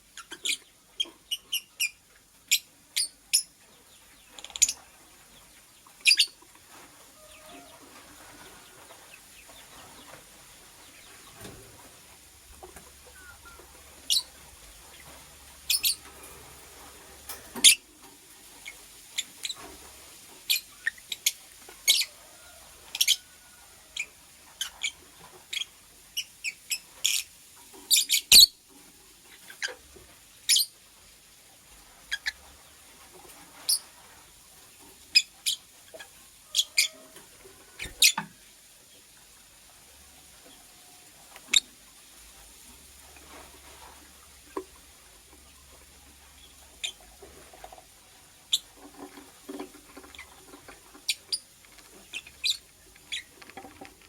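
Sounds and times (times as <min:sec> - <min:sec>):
lovebird chirping: 0:06.0 - 0:06.4, 0:12.9 - 0:16.3, 0:27.9 - 0:28.6, 0:52.1 - 0:53.3.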